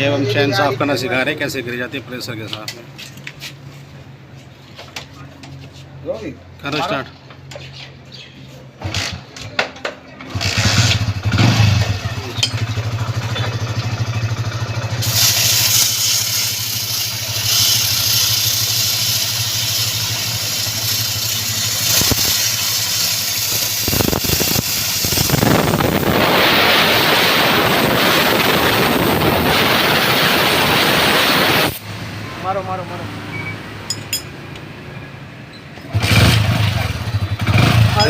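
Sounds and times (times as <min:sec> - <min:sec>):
motorcycle engine kick-started: 0:08.8 - 0:31.8, 0:35.8 - 0:38.0
motorcycle engine running: 0:10.3 - 0:31.8, 0:35.9 - 0:38.0
steady spray hiss: 0:14.9 - 0:31.9.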